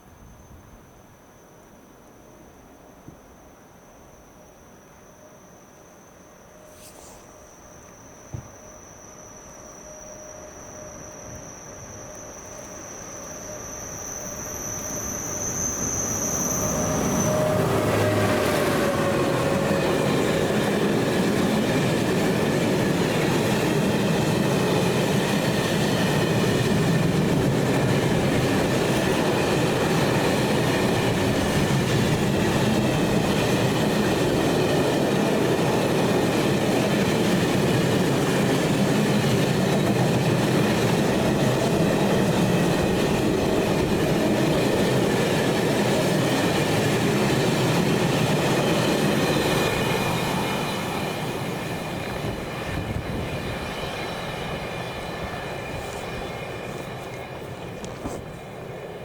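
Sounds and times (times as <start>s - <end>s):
faint wheel squeal: 5.3s - 20.3s
train wheels rumbling and clattering: 13.9s - 59.0s.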